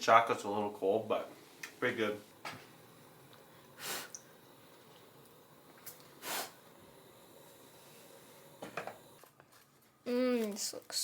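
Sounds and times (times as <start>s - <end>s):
faint room noise: 0.0s - 11.0s
person sniffing: 3.8s - 4.2s, 6.2s - 6.6s.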